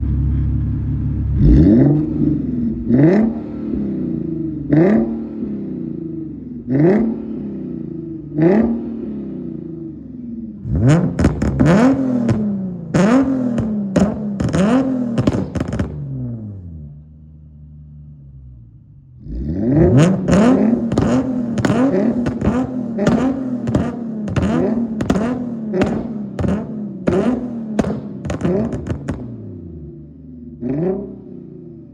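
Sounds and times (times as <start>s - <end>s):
car engine revving in blips: 0.0s - 17.1s, 18.1s - 31.9s
car engine idling: 0.0s - 30.6s.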